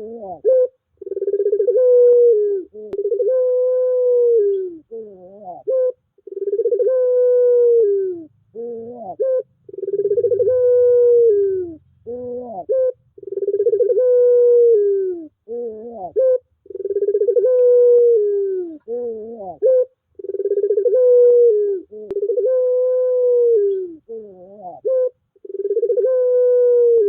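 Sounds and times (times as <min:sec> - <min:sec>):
dove cooing: 0:00.0 - 0:27.0.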